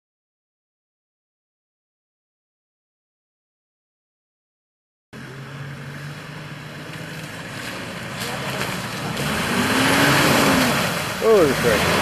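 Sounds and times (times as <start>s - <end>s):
engine running at low speed: 5.2s - 12.0s.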